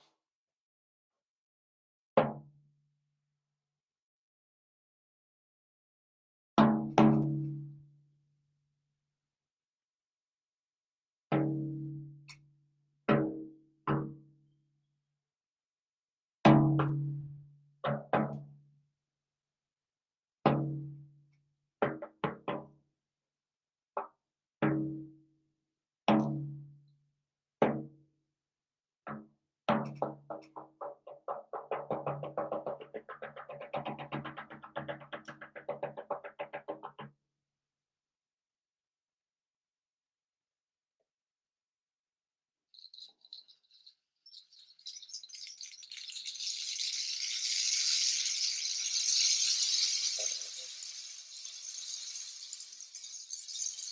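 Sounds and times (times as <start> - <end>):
hand rattle shaking: 42.7 - 53.9
percussion strokes ringing low: 42.8 - 53.9.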